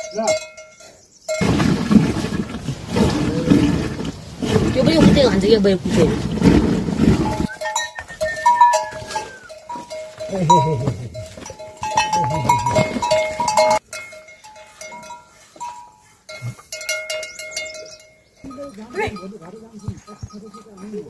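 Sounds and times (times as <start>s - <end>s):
livestock bells ringing: 0.0s - 1.5s, 7.2s - 21.0s.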